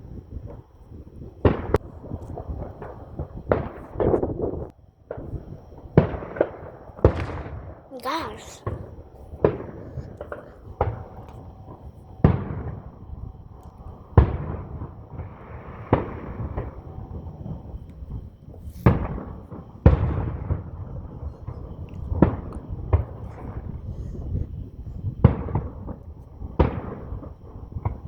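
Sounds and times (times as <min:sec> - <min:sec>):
fireworks bangs with echo: 0:06.0 - 0:13.0, 0:18.8 - 0:23.8
fireworks crackling: 0:06.4 - 0:12.8.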